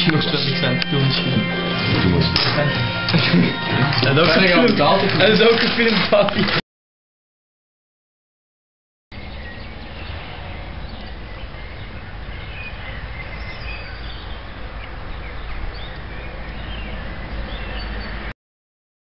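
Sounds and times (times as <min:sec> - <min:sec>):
small birds chirping: 0:09.1 - 0:18.3.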